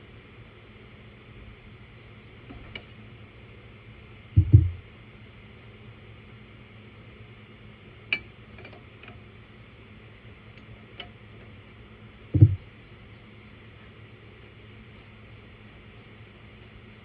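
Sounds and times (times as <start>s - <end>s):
dull thump: 4.4s - 4.8s, 12.4s - 12.7s.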